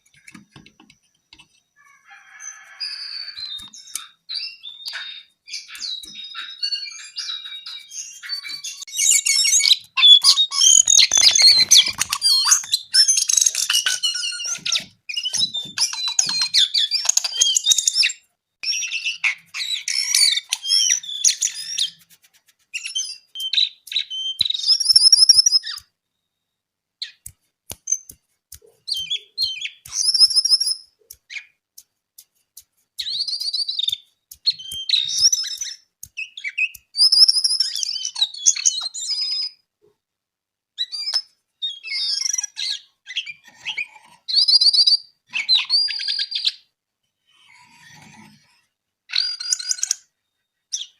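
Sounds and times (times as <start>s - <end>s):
songbird chirping and trilling: 0.0s - 22.1s, 22.8s - 31.6s, 33.0s - 39.7s, 40.8s - 46.7s, 49.1s - 50.9s.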